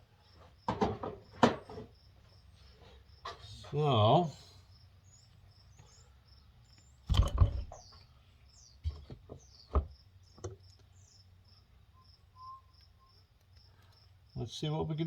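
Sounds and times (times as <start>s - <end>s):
crickets chirping: 0.0s - 8.8s, 9.4s - 15.0s
tools knocking and clattering: 0.6s - 1.9s.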